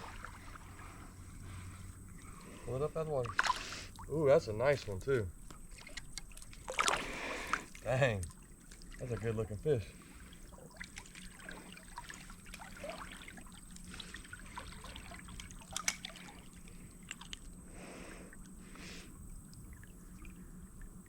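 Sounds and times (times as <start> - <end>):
creek water trickling: 0.0 - 21.0
small clicks and splashes: 3.2 - 17.6.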